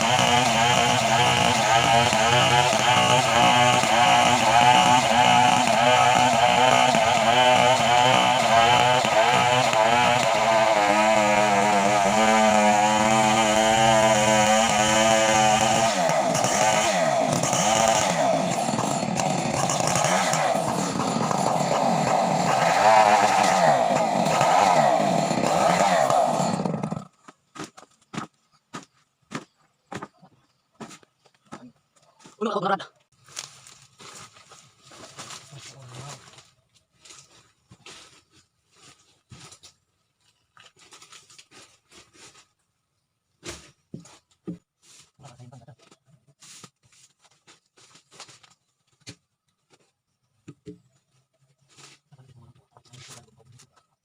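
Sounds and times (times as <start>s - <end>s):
chainsaw running: 0.0s - 27.2s.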